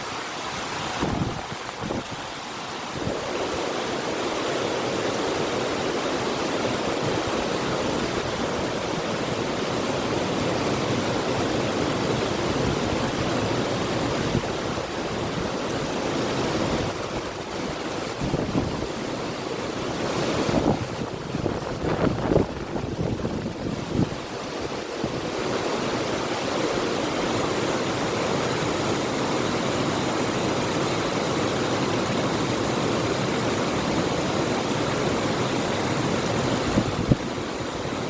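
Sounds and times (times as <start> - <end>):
river rushing: 0.0 - 38.0
wind buffeting: 0.6 - 3.6, 19.9 - 25.6, 36.3 - 38.0.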